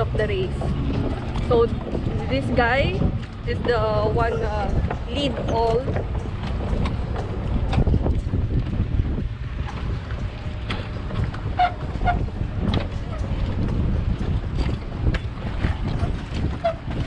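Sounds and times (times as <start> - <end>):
motorboat engine: 0.0 - 17.0
water noise: 0.0 - 17.0
wind buffeting microphone: 0.0 - 17.0.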